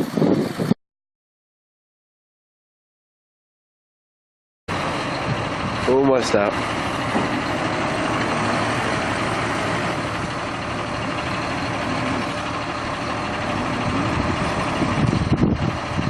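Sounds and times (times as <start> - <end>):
heavy vehicle engine droning: 4.7 - 16.0.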